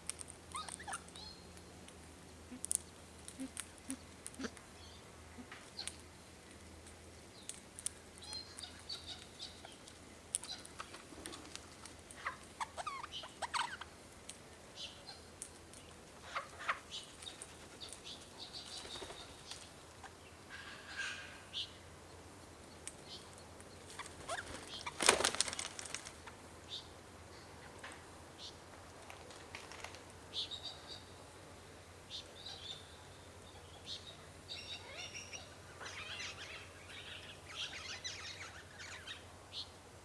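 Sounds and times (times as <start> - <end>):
birds chirping and calling: 8.2 - 13.9, 14.8 - 21.8, 23.0 - 27.8, 32.1 - 39.7
loud flutter of wings: 23.9 - 26.2, 29.1 - 30.0.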